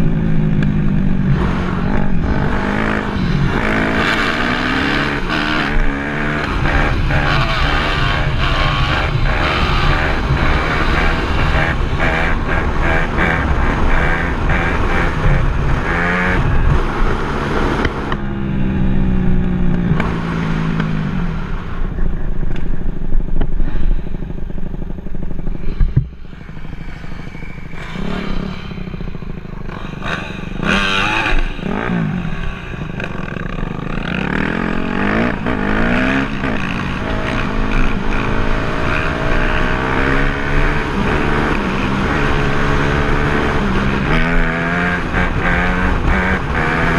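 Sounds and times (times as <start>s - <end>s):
dirt bike engine revving: 0.0s - 22.0s, 23.6s - 46.9s.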